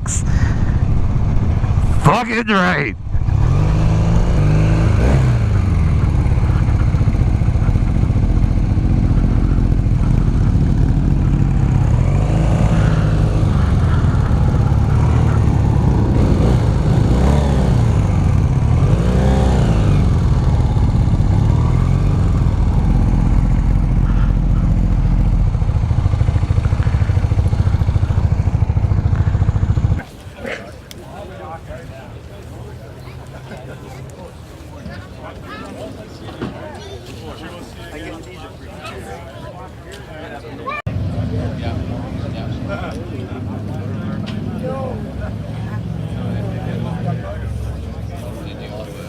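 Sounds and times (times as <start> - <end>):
motorcycle engine revving: 2.9 - 30.0.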